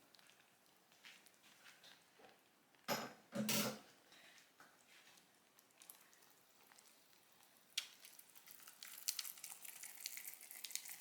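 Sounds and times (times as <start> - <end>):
toffee sizzling and crackling: 4.7 - 11.0.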